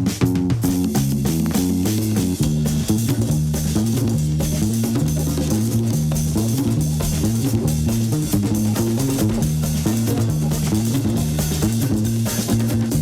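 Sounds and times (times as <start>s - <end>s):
breakbeat dance music: 5.7s - 13.0s.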